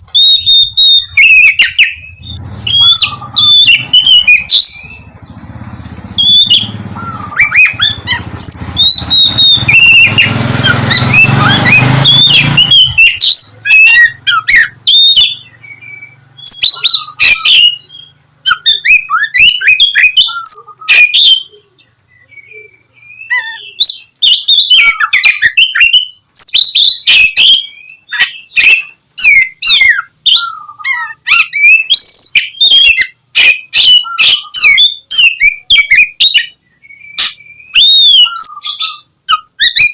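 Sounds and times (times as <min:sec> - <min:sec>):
magpie-robin singing: 0:00.0 - 0:39.9
low rumbling noise: 0:01.9 - 0:18.5.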